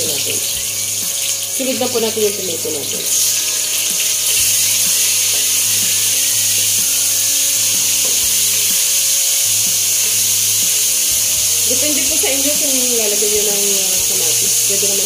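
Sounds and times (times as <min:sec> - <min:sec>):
tomatoes sizzling in hot oil: 0:00.0 - 0:15.0.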